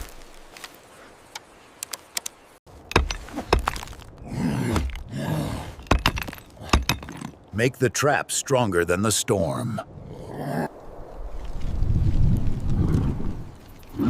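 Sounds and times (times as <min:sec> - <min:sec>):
sharp knocks and thuds: 0:02.8 - 0:04.1, 0:05.8 - 0:07.3.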